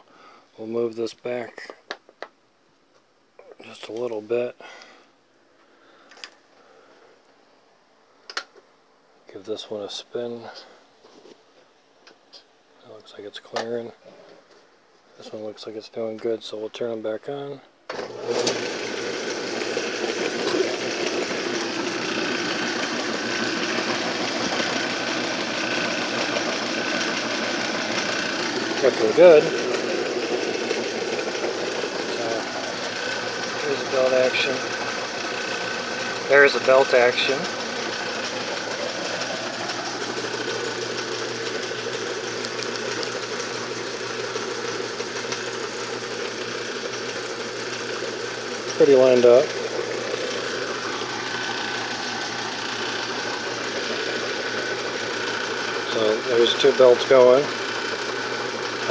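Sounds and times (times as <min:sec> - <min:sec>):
can crusher whirring and rattling: 0:17.9 - 0:58.9.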